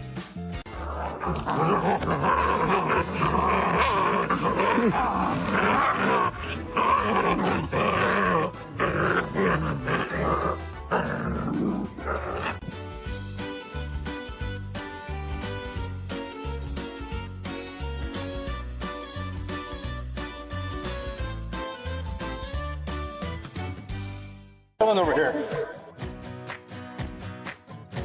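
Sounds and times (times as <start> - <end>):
background music: 0.0 - 28.0
dog growling: 0.7 - 12.8.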